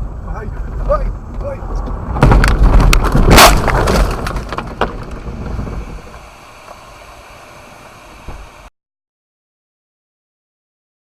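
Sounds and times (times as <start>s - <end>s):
car crash crunching: 1.9s - 6.2s.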